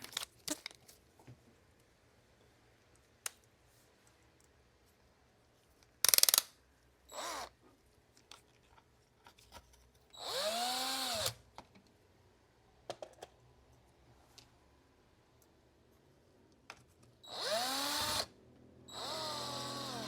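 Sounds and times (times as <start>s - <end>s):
electric screwdriver motor: 10.2s - 11.4s, 17.3s - 18.3s, 18.9s - 20.0s.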